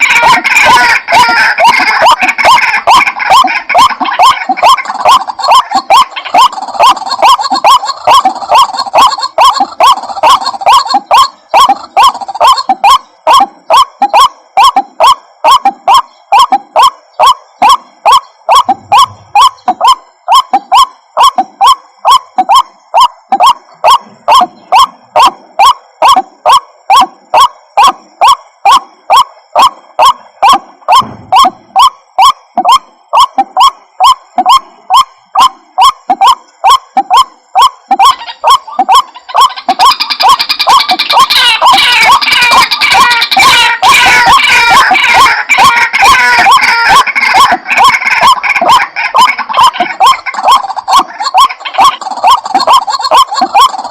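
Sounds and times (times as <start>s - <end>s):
waterhen calling: 0.0s - 53.9s.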